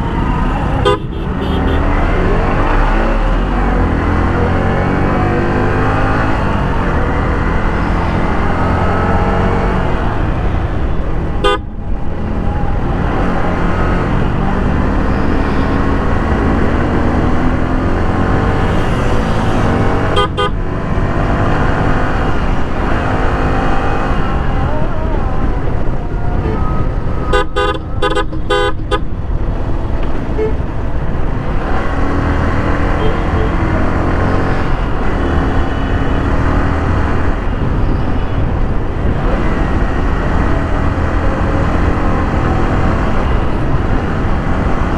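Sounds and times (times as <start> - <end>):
motorcycle engine and road noise: 0.0 - 44.9
vehicle horn honking: 0.7 - 2.0, 11.4 - 11.8, 18.5 - 20.6, 26.5 - 29.1, 30.3 - 30.7, 33.0 - 33.6.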